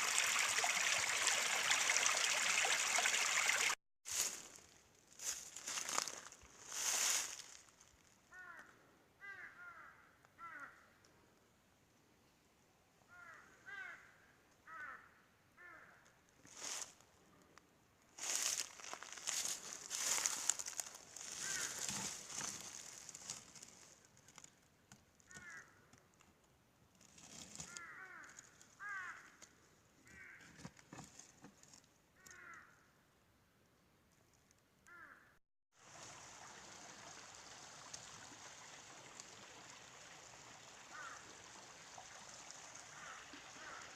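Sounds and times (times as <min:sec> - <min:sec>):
crow cawing: 0:08.3 - 0:10.9, 0:13.1 - 0:16.1, 0:21.3 - 0:21.9, 0:25.3 - 0:25.8, 0:27.7 - 0:29.4, 0:30.0 - 0:30.5, 0:32.2 - 0:32.8, 0:34.9 - 0:35.3, 0:40.9 - 0:41.2, 0:42.9 - 0:43.9.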